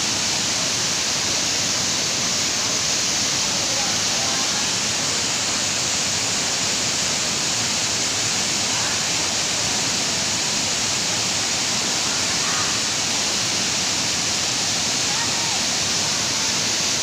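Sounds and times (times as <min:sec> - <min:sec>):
waterfall crashing: 0:00.0 - 0:17.0
faint voices: 0:15.0 - 0:16.8.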